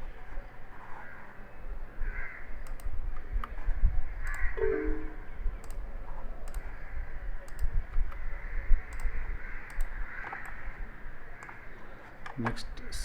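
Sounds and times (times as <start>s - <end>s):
computer mouse clicks: 2.6s - 3.6s, 5.6s - 5.8s, 6.4s - 6.7s, 7.4s - 8.2s, 8.8s - 10.7s, 11.4s - 11.6s.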